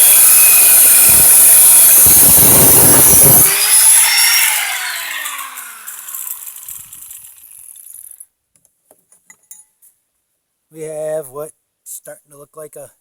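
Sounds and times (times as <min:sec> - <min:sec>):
angle grinder cutting steel: 0:00.0 - 0:08.1
grinder disc spinning down: 0:00.0 - 0:08.2.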